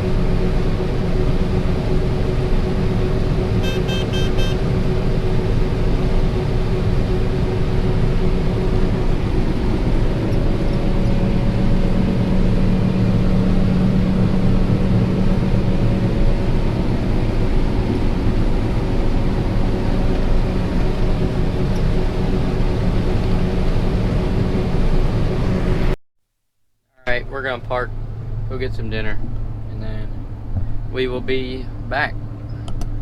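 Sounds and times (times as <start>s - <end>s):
combine harvester drone: 0.0s - 26.0s, 27.0s - 33.0s
electronic alarm beeps: 3.6s - 4.6s.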